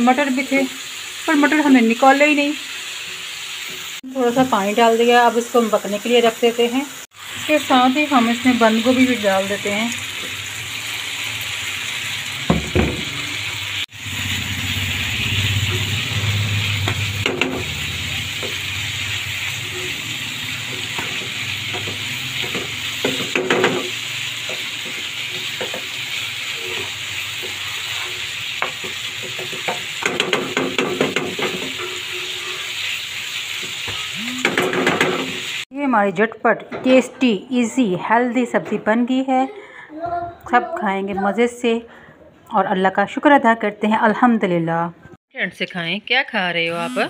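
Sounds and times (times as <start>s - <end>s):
vegetables sizzling in oil: 0.0s - 36.1s
spatula scraping a pan: 15.4s - 35.6s.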